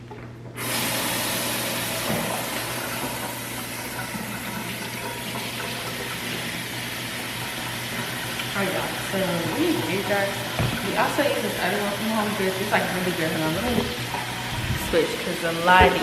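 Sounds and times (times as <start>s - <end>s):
faucet water running into sink: 0.6s - 16.0s.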